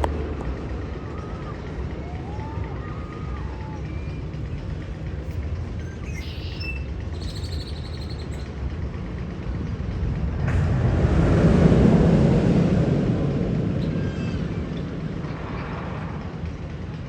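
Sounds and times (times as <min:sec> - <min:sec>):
roller coaster rumbling: 0:00.0 - 0:17.0
rushing noise: 0:00.0 - 0:17.0.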